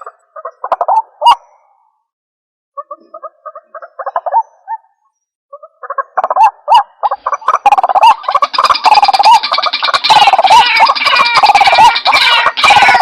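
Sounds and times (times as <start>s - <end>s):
waterhen calling: 5.5s - 13.0s.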